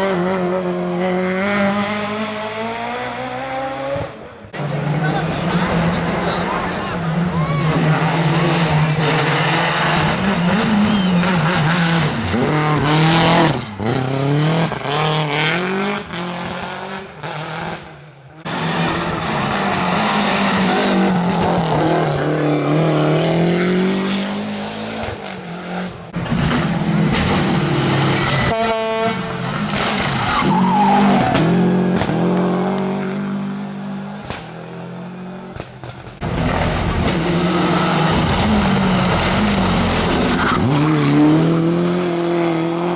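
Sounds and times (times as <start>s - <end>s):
rally car engines revving: 0.0s - 42.9s
tyre squeal: 4.0s - 13.9s, 18.5s - 23.2s, 26.2s - 32.4s, 36.2s - 41.5s.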